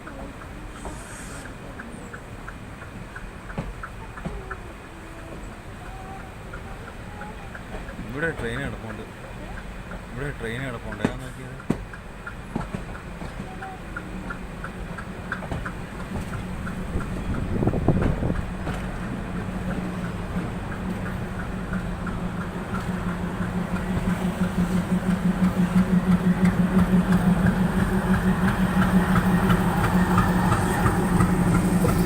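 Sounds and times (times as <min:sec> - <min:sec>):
diesel train engine hum: 0:00.0 - 0:32.0
train wheels clicking: 0:00.0 - 0:32.0.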